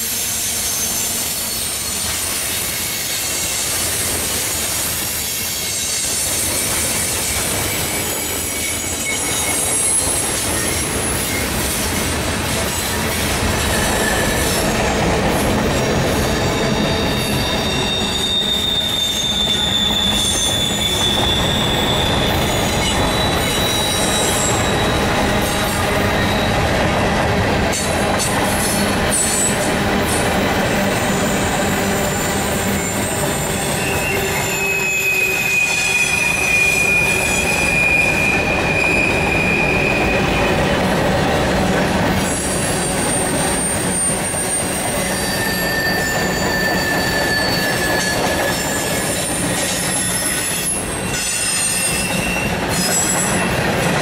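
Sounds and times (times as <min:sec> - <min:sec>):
train wheels rumbling on rail: 0:00.0 - 0:54.0
high-pitched flange squeals: 0:05.3 - 0:11.7, 0:13.6 - 0:26.9, 0:28.6 - 0:40.7, 0:42.2 - 0:53.5.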